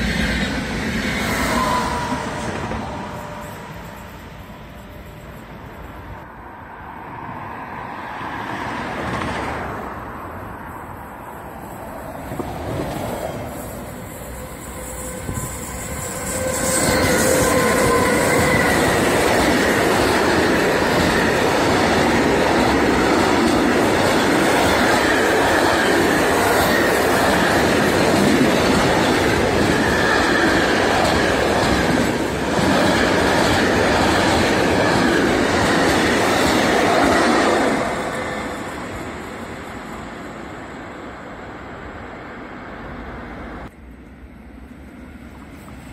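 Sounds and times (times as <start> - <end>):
train rolling on rails: 0.0 - 45.9
wheels squealing: 11.6 - 40.6.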